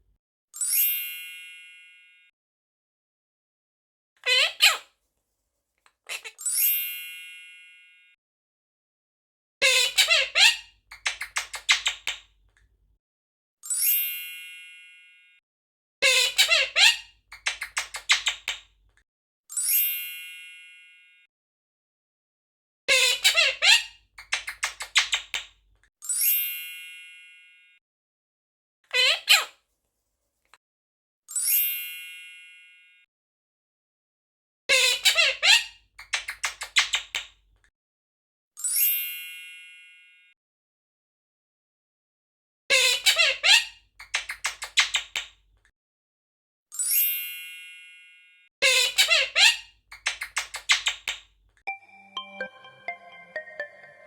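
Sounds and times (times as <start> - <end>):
parrot chirping: 9.7 - 12.2, 16.1 - 18.6, 23.3 - 25.5, 42.8 - 45.3, 48.8 - 51.2
bell-like chime: 46.9 - 48.5, 51.7 - 54.0.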